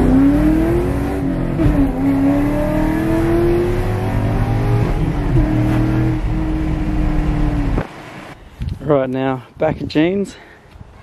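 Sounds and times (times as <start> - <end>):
car engine from inside cabin: 0.0 - 8.4.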